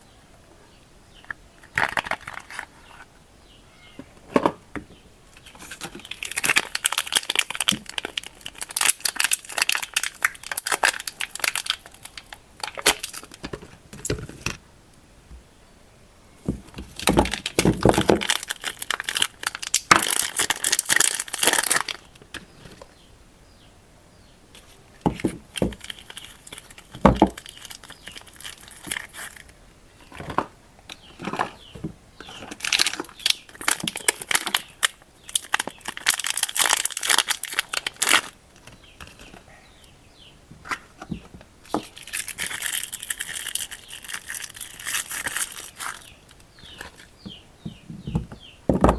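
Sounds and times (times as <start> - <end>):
wrapper crinkling and tearing: 5.4 - 13.5, 16.8 - 22.8, 24.6 - 30.4, 31.1 - 39.4, 41.7 - 47.1.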